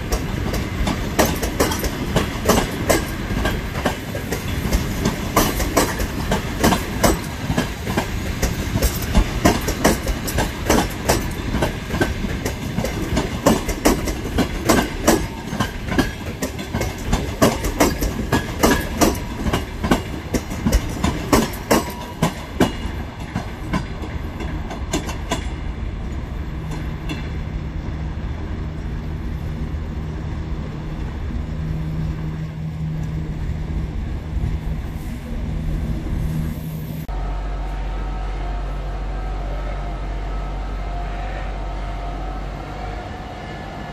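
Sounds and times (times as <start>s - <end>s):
train wheels clacking over rail joints: 0.0s - 25.7s
train rumble with low hum: 0.0s - 43.9s.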